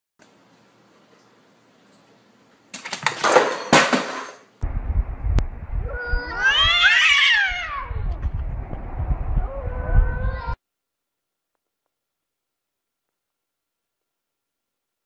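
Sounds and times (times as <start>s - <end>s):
wind rumble on microphone: 4.6s - 10.6s
cat yowling: 5.9s - 8.1s, 9.4s - 10.6s.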